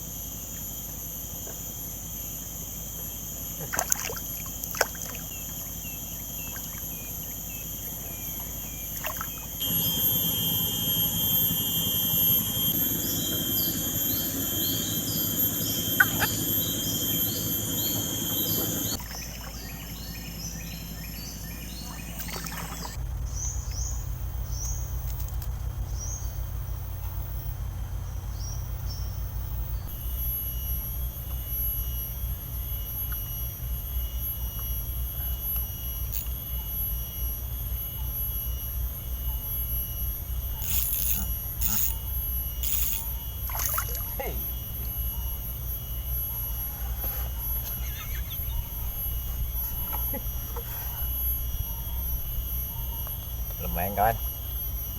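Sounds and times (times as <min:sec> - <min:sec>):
insects droning: 0:00.0 - 0:54.9
low steady rumble: 0:04.2 - 0:53.6
short chirping bird calls: 0:46.8 - 0:50.2.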